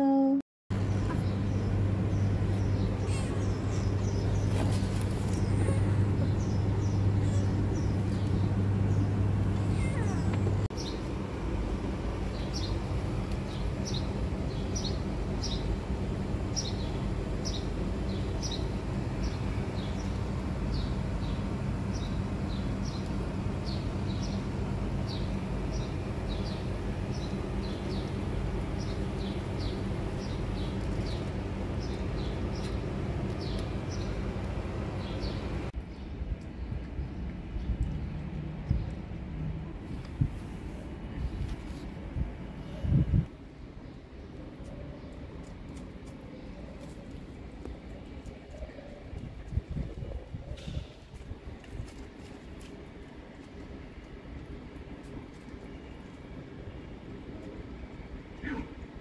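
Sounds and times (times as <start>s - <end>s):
steady low hum: 0.0s - 59.0s
small birds chirping: 0.8s - 11.1s, 12.2s - 39.0s.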